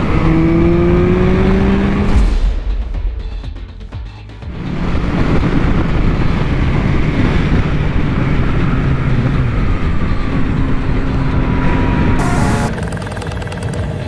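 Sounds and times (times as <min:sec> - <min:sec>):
motorcycle engine running: 0:00.0 - 0:02.2, 0:03.0 - 0:14.0
wind noise on microphone: 0:04.6 - 0:12.8.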